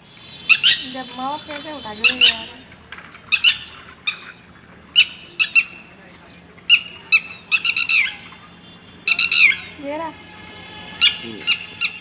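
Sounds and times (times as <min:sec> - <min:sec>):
bird shrill alarm calls: 0:00.1 - 0:02.6, 0:03.3 - 0:04.4, 0:05.0 - 0:05.9, 0:06.7 - 0:08.3, 0:09.1 - 0:09.8, 0:11.0 - 0:12.0.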